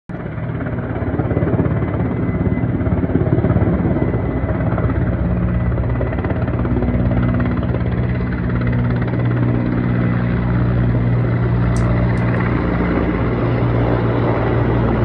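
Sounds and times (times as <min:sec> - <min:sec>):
helicopter rotor beating: 0:00.1 - 0:15.0
low engine hum: 0:03.7 - 0:15.0.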